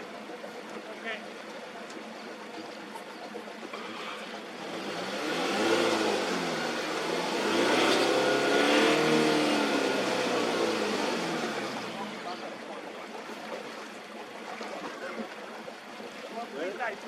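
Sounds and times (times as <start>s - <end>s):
truck engine revving: 3.7s - 12.4s.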